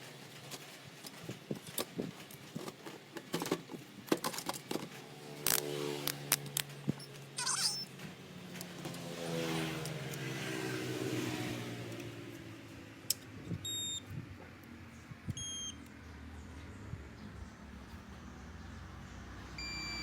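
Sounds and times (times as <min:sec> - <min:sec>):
vehicle engine passing by: 0:05.0 - 0:06.6, 0:08.7 - 0:12.8, 0:16.1 - 0:19.6
short electronic beeps: 0:07.4 - 0:07.9, 0:13.6 - 0:14.0, 0:15.4 - 0:15.8, 0:19.6 - 0:20.0.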